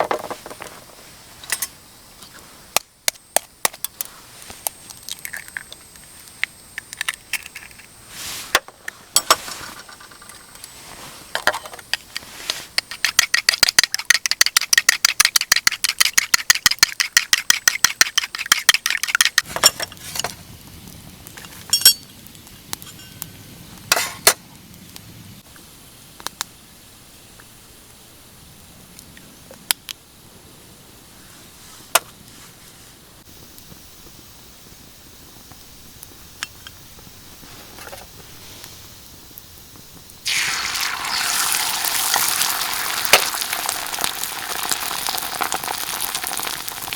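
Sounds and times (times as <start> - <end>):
utensils clinking on cookware: 21.7 - 22.1.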